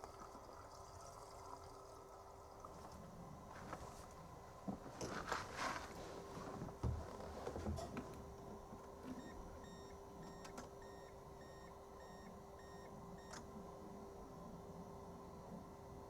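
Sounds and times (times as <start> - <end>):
faint electronic beeps: 9.2 - 13.4.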